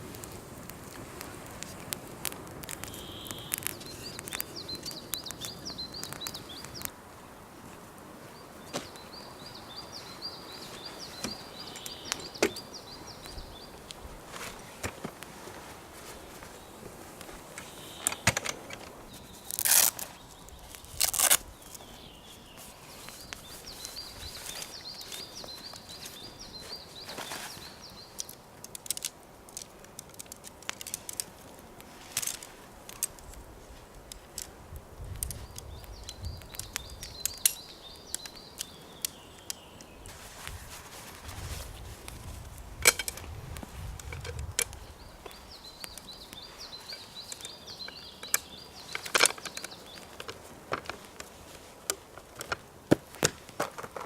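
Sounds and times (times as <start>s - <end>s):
clicks and snaps: 0.0s - 6.9s, 28.2s - 34.5s, 35.1s - 40.0s, 42.8s - 51.3s
songbird trilling: 2.8s - 6.9s.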